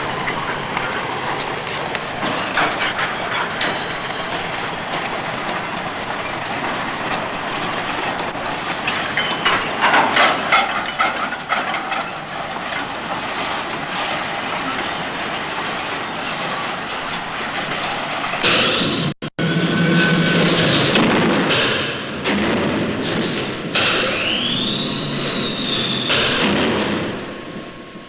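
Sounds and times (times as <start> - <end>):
light rhythmic clicking of wheels: 0.0 - 18.7
train clattering: 0.0 - 19.1
train rumbling on rails: 0.0 - 28.0.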